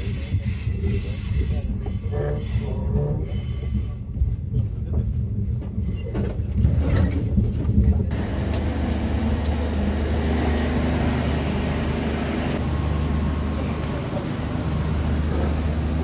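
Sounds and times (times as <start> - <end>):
train rumbling on rails: 0.0 - 16.0
station platform hum: 8.1 - 16.0.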